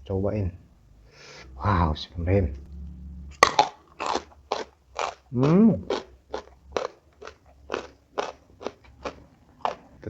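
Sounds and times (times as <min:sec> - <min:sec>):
crunchy chewing: 0:03.4 - 0:10.0.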